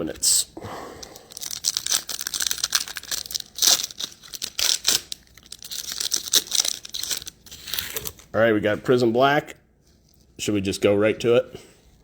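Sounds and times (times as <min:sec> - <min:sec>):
foil wrappers tearing and crinkling: 0:01.2 - 0:08.2.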